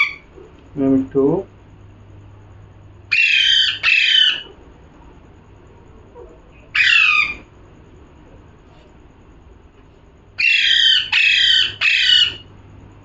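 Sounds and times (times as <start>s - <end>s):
parrot squawking: 0.0s - 0.4s, 3.1s - 4.6s, 6.7s - 7.5s, 10.4s - 12.5s.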